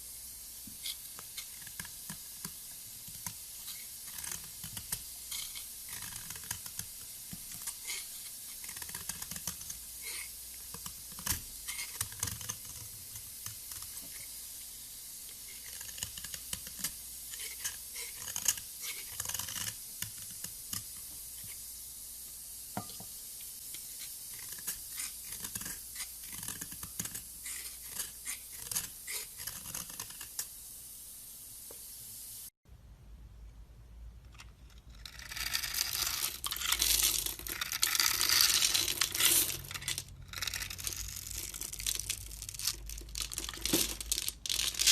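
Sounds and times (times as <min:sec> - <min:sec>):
steady hiss: 0:00.0 - 0:32.6, 0:35.0 - 0:44.9
blade scraping soap: 0:03.2 - 0:14.4, 0:15.4 - 0:21.6, 0:24.0 - 0:30.5, 0:34.6 - 0:43.8.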